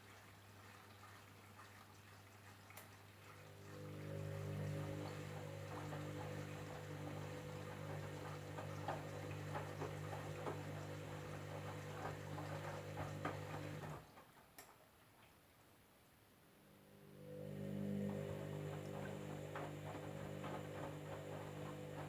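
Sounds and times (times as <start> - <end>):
water sloshing: 0.0 - 14.8
washing machine motor hum: 3.1 - 14.2, 16.6 - 22.0.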